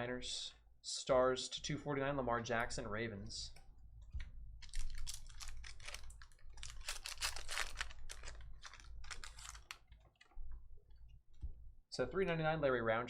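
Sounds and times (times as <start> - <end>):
trading cards being shuffled: 4.6 - 9.8.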